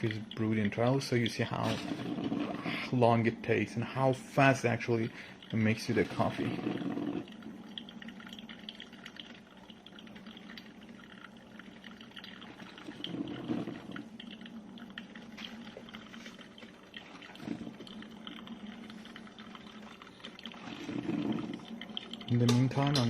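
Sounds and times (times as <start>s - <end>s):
coffee maker water gurgling and dripping: 0.0s - 23.0s.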